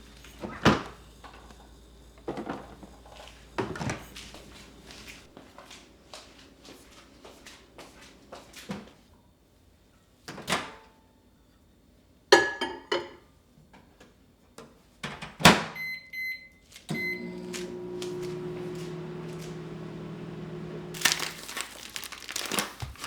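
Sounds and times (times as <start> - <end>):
microwave oven humming: 0.0 - 8.6, 15.8 - 23.0
keypad beeps: 15.8 - 17.2.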